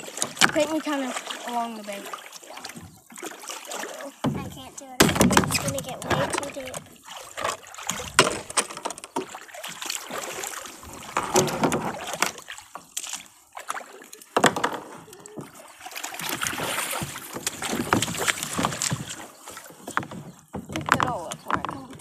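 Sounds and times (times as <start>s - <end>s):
water splashing: 0.0s - 22.0s
knocks against kayak hull: 4.2s - 6.8s, 7.4s - 9.4s, 11.0s - 13.1s, 14.4s - 15.5s, 16.2s - 22.0s.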